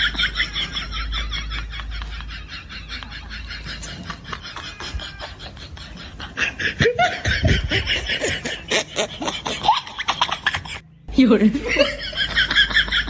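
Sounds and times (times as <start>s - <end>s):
person laughing: 0.0s - 10.8s, 11.6s - 13.0s.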